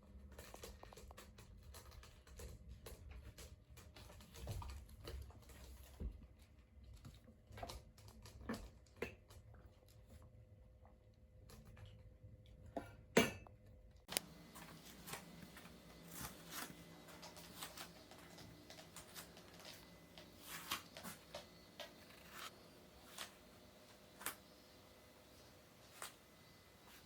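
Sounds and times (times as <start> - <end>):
small hard toys clicking and rattling: 0.1 - 10.1.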